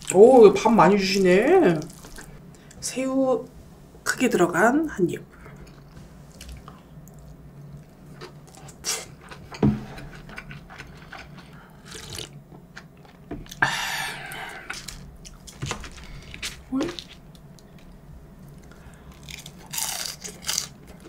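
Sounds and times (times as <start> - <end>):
close chewing with mouth smacks: 5.5 - 13.6.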